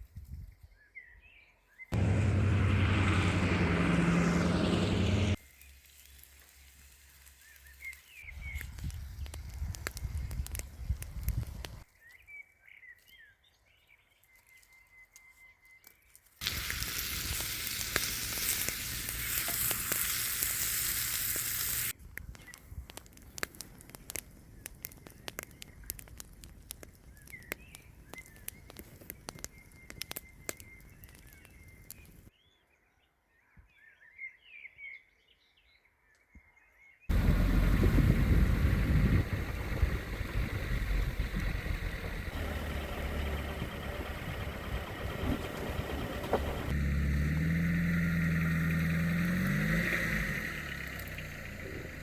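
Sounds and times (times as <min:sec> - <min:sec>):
campfire cooking sizzling and crackling: 0:05.2 - 0:11.9, 0:16.2 - 0:32.3, 0:37.1 - 0:52.0
small birds chirping: 0:07.2 - 0:20.2, 0:21.0 - 0:46.8.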